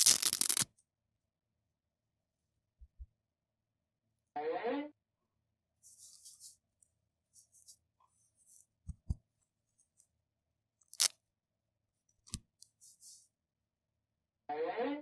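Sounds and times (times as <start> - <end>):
plastic packaging crinkling: 0.0 - 0.6, 10.9 - 11.1.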